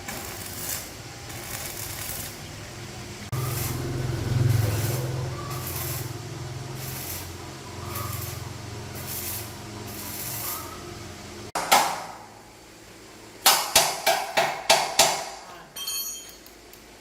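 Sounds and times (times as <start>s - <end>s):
hammer striking metal: 11.6s - 12.3s, 13.4s - 16.4s.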